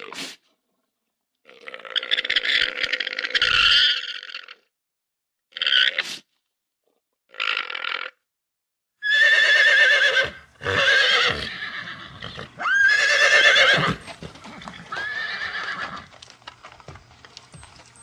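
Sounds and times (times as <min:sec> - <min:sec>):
horse neighing: 0:09.0 - 0:16.1.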